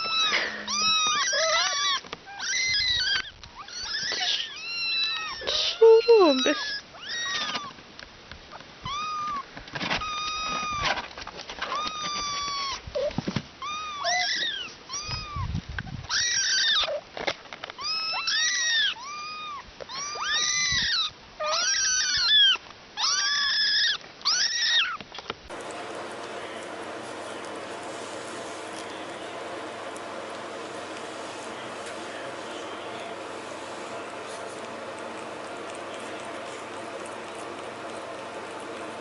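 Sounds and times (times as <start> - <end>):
cat meowing: 0.0 - 7.7, 8.9 - 9.4, 13.6 - 15.4, 17.8 - 25.0
steady hiss: 25.5 - 39.0.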